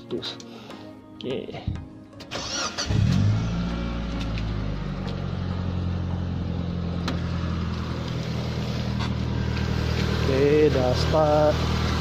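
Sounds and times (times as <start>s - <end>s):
car engine idling: 2.4s - 12.0s.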